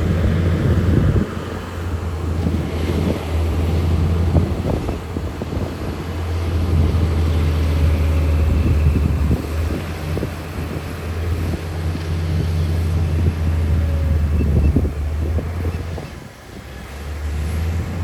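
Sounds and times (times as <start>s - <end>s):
diesel machinery engine drone: 0.0s - 18.0s.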